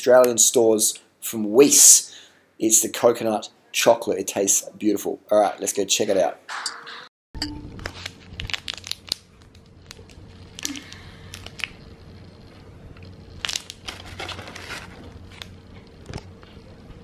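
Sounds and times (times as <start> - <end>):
steady low hum: 7.4 - 17.0
crinkling and clicking: 7.8 - 11.8.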